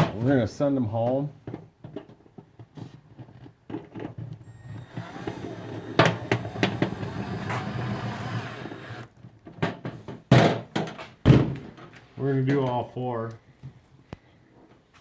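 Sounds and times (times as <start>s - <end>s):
power drill driving screw into metal: 4.4s - 9.1s.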